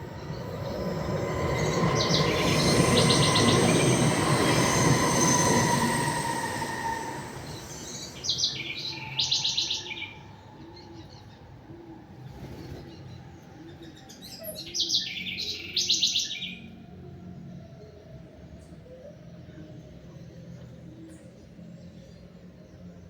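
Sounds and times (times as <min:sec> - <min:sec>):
loud rushing noise with whine: 0:00.0 - 0:09.7.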